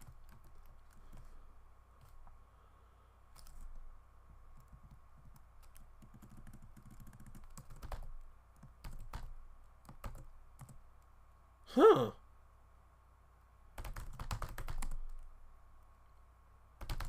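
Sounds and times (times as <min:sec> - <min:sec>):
computer keyboard typing: 0:00.0 - 0:01.3, 0:03.4 - 0:03.8, 0:04.6 - 0:10.8, 0:13.8 - 0:15.2, 0:16.8 - 0:17.0.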